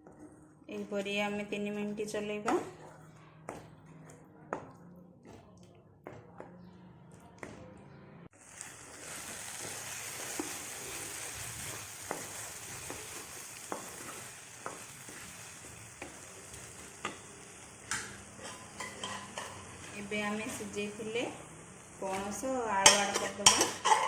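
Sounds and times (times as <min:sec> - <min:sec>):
gravy sizzling in a pan: 0:08.3 - 0:24.0
spatula scraping and tapping pan: 0:09.0 - 0:20.8, 0:22.0 - 0:24.0.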